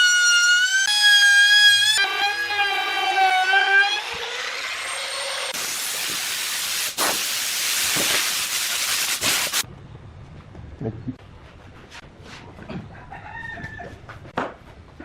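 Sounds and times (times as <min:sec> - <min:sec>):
power tool motor whine: 0:00.0 - 0:05.6
tool hissing through wood: 0:05.5 - 0:09.6.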